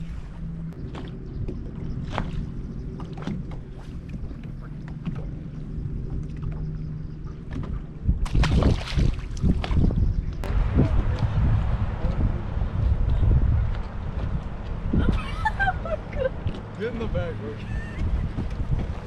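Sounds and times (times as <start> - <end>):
boat motor humming: 0.0 - 8.6, 9.2 - 19.0
rushing splashing water: 8.2 - 9.7.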